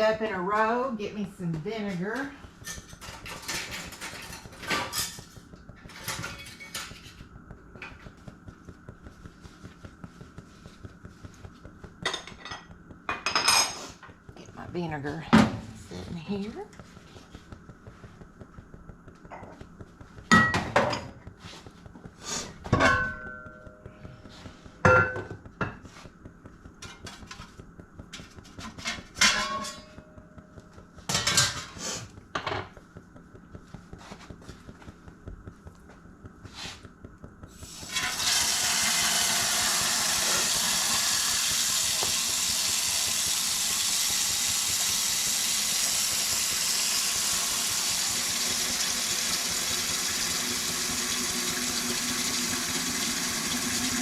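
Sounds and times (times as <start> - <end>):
water running from a tap: 37.6 - 54.0.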